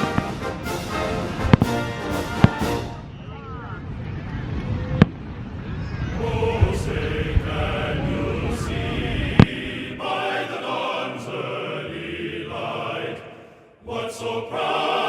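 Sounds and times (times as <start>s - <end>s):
choir singing: 0.0s - 3.1s, 6.1s - 15.0s
low rumble of fireworks: 0.0s - 9.5s.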